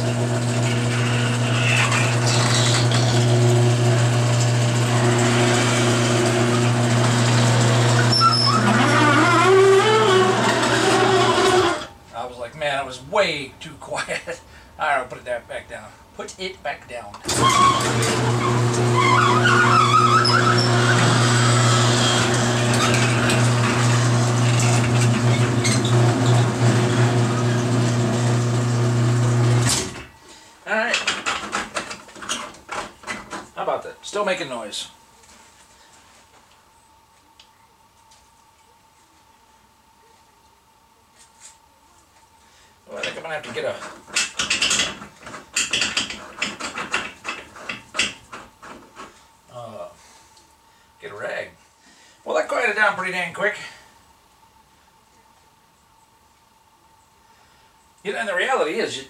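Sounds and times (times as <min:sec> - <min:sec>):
garage door opener motor hum: 0:00.0 - 0:11.9, 0:17.2 - 0:30.1
garage door rollers rattling: 0:00.1 - 0:11.9, 0:17.2 - 0:30.1, 0:31.0 - 0:33.6, 0:43.0 - 0:49.0.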